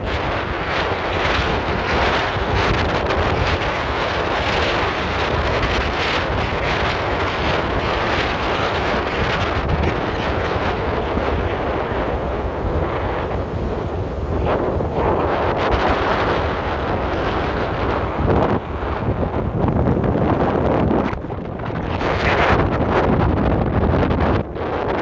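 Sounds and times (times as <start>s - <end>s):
sea waves washing in: 0.0s - 23.5s
wind blowing hard: 0.0s - 25.0s
wind buffeting microphone: 0.0s - 25.0s.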